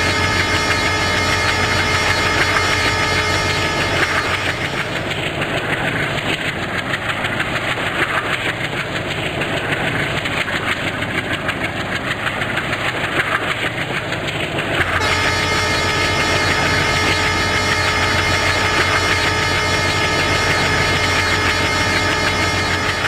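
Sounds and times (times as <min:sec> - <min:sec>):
steady hum with tones: 0:00.0 - 0:05.2, 0:14.8 - 0:23.0
train rumbling on tracks: 0:00.0 - 0:23.0.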